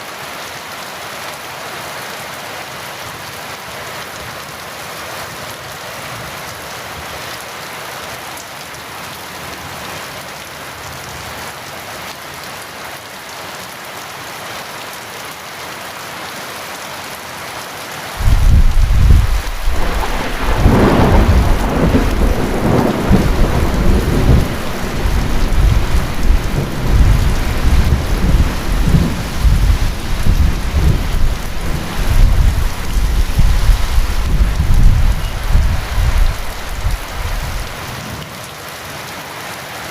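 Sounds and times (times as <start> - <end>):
heavy rain falling: 0.0 - 39.9
thunder crack and rumble: 18.2 - 37.8.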